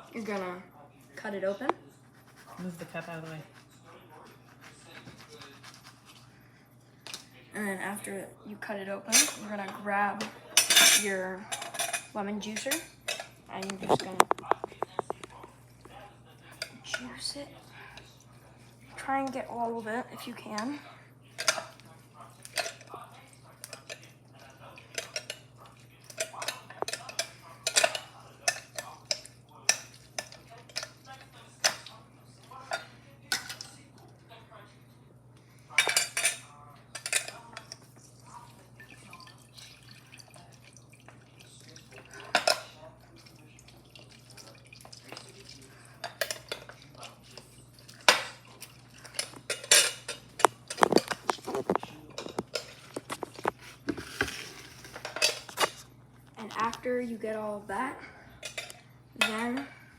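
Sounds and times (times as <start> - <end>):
lemon juicer and dishes clinking: 9.1 - 18.2, 21.4 - 33.8, 35.8 - 55.8, 58.4 - 59.8.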